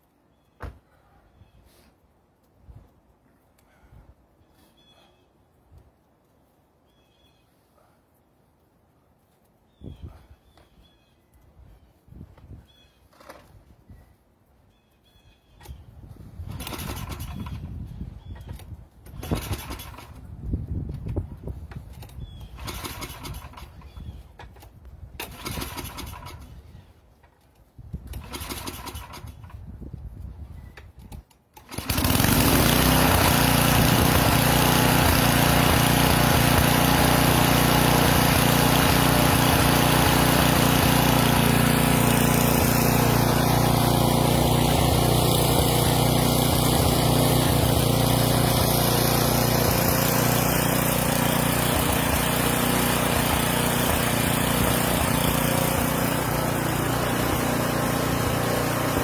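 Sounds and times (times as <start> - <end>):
engine starting and running: 16.4 - 17.8, 18.4 - 20.3, 20.9 - 26.7, 28.0 - 29.6, 31.0 - 59.0.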